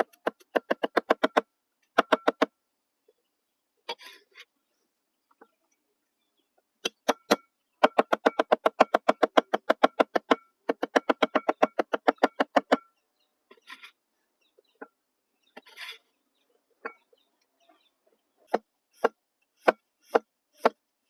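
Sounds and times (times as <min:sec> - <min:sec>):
knife chopping on wooden board: 0:18.5 - 0:20.8.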